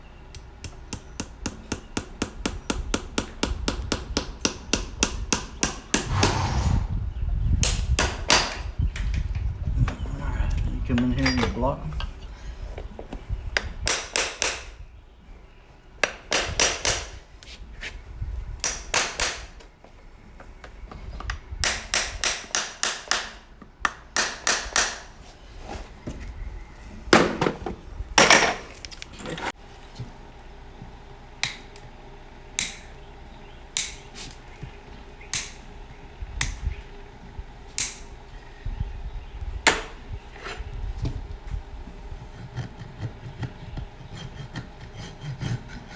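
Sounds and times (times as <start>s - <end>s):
hammer striking horseshoe nails: 0.3s - 6.3s, 7.6s - 8.6s, 13.8s - 14.8s, 16.0s - 17.2s, 18.6s - 19.6s, 21.6s - 25.1s.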